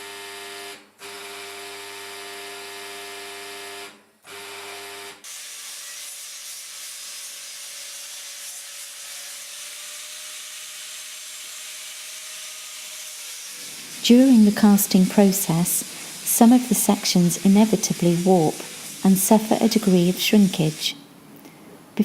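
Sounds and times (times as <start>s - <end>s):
power tool motor whining: 9.4s - 20.9s
grinding on metal: 17.4s - 19.9s.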